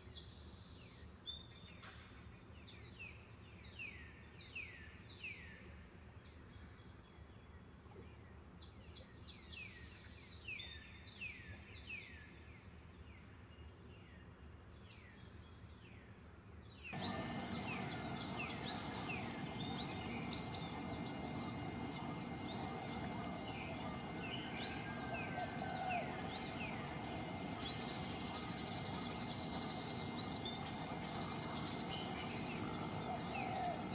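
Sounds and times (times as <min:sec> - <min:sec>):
birds chirping: 0:17.0 - 0:33.9
birds whistling: 0:17.0 - 0:33.9
flowing water: 0:17.0 - 0:33.9
insect drone: 0:17.0 - 0:33.9.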